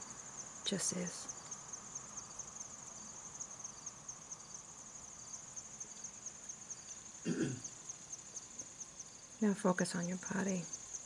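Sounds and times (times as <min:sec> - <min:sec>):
crickets chirping: 0:00.0 - 0:11.0
human vocal sound: 0:07.3 - 0:07.6.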